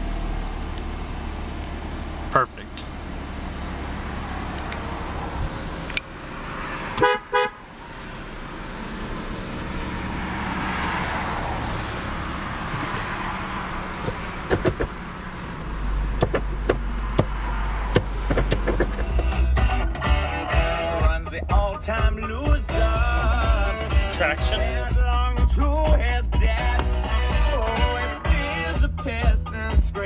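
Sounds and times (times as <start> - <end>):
car engine idling: 0.0 - 30.0
car horn honk: 6.8 - 7.7.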